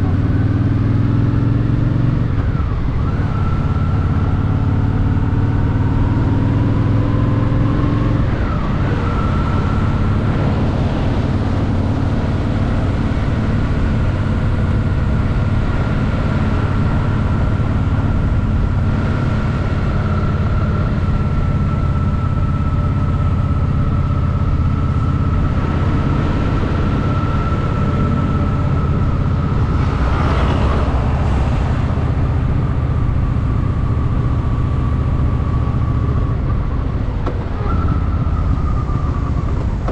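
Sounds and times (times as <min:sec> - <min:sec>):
motorcycle engine running: 0:08.9 - 0:39.9
brief rushing noise: 0:28.7 - 0:34.3.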